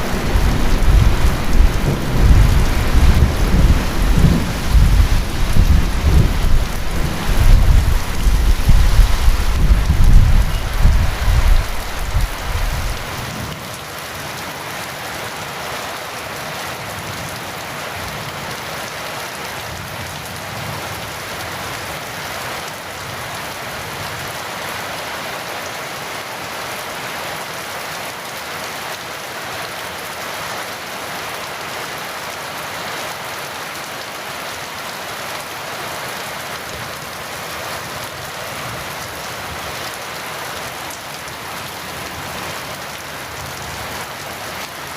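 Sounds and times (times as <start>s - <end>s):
thunder rumble: 0.0s - 13.3s
heavy rain falling: 0.0s - 44.9s.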